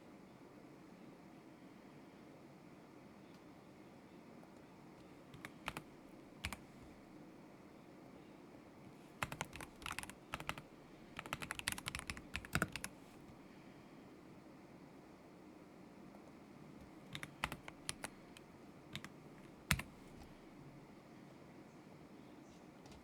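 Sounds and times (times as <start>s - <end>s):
mechanical keyboard typing: 5.3s - 6.7s, 9.2s - 10.6s, 11.2s - 13.2s, 17.1s - 20.3s.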